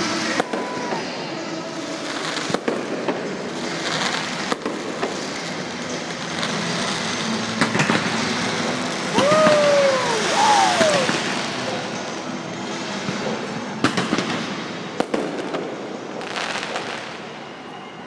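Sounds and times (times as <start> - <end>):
fireworks bangs: 0.0 - 11.9, 13.8 - 17.2
steady noisy background: 0.0 - 18.0
loud high-pitched call: 9.1 - 11.2.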